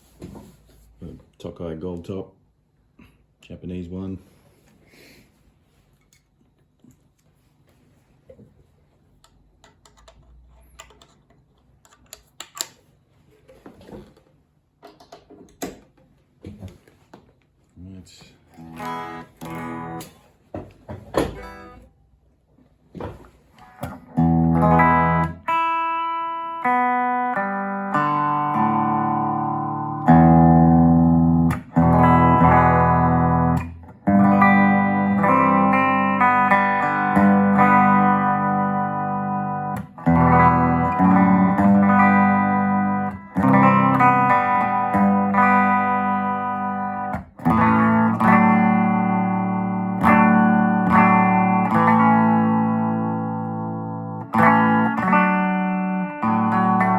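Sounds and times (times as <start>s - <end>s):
electric guitar chords and notes: 18.5s - 21.9s, 23.0s - 56.9s.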